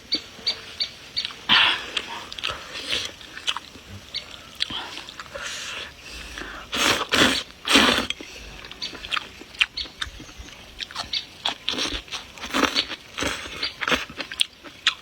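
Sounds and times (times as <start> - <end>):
person chewing with wet smacks: 1.2 - 15.0
slurping noodles: 4.6 - 8.4.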